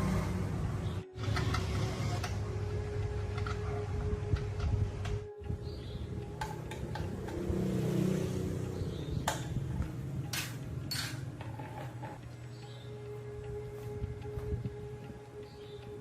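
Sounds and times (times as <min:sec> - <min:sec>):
low mechanical hum: 0:00.0 - 0:16.0
sharp knocks and clicks: 0:06.3 - 0:07.8.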